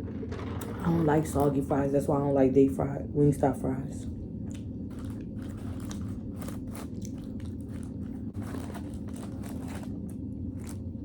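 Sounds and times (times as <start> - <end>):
steady low hum: 0.0 - 11.0
person chewing crunchy food: 4.3 - 11.0.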